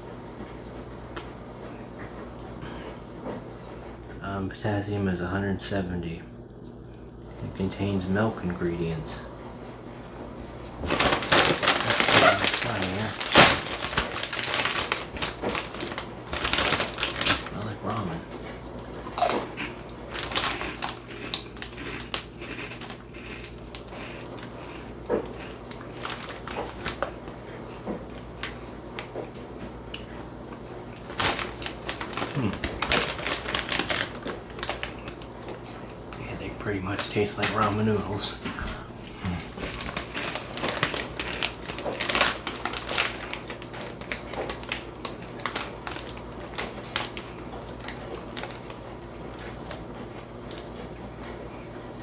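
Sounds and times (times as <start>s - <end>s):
crunchy snack being chewed: 10.5s - 52.0s.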